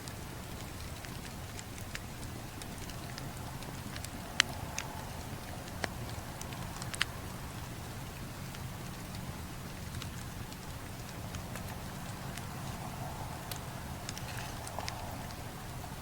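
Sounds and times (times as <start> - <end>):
burning wood popping: 0.0 - 16.0
campfire crackling: 0.0 - 16.0.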